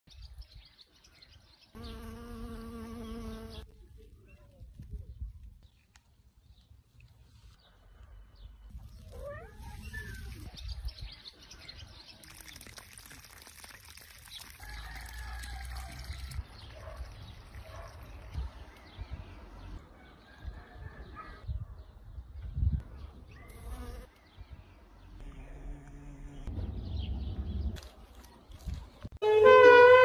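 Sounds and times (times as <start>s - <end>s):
small birds chirping: 0.1s - 19.8s.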